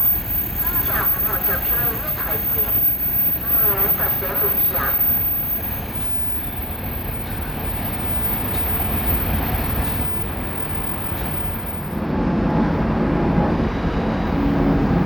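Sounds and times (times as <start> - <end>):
freight train wagons rolling: 0.0 - 12.0.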